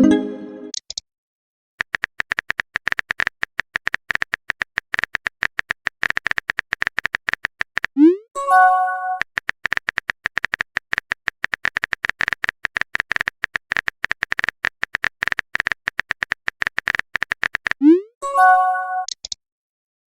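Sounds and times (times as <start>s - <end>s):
message sent chime: 0.0s - 0.7s
keyboard typing taps: 1.8s - 8.0s, 9.2s - 17.8s.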